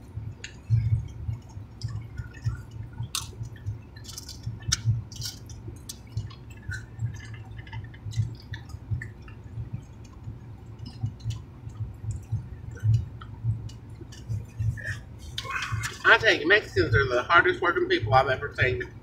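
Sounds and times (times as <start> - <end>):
chewing and lip-smacking: 0.0 - 16.2.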